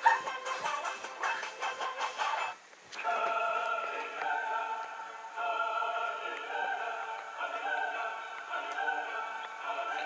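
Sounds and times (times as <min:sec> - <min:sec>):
held choir-like chord: 0:03.0 - 0:10.0.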